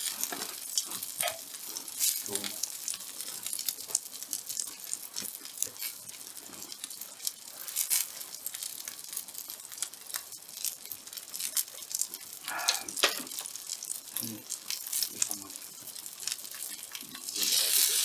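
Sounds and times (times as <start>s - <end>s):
steak sizzling on iron plate: 0.0s - 18.0s
wood fire crackling: 0.0s - 18.0s
fat spitting: 12.4s - 13.0s.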